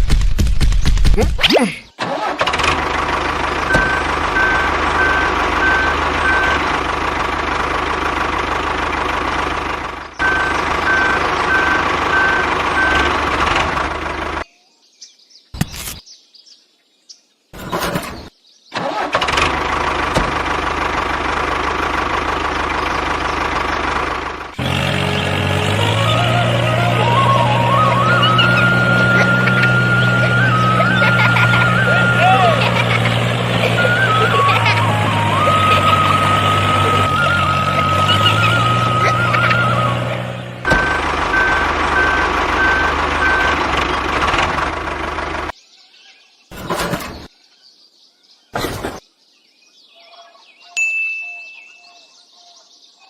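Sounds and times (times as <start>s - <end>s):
small engine running: 2.0s - 14.4s, 17.6s - 45.5s, 46.5s - 47.3s
stepped rising tune: 24.8s - 43.6s.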